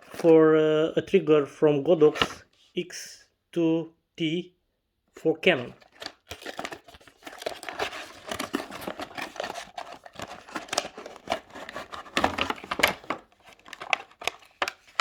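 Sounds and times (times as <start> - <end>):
packaging crinkling and rustling: 5.6 - 15.0.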